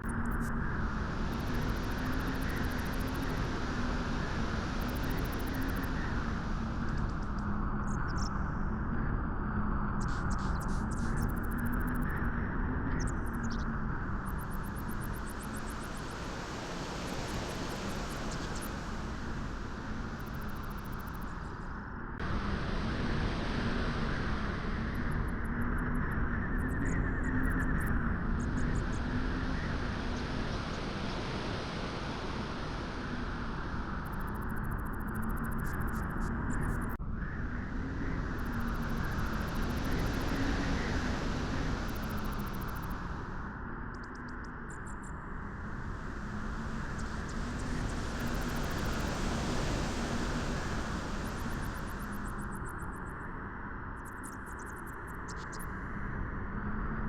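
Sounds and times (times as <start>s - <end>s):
faint wavering hum: 0.0s - 57.0s
beach wind rushing: 45.5s - 52.7s.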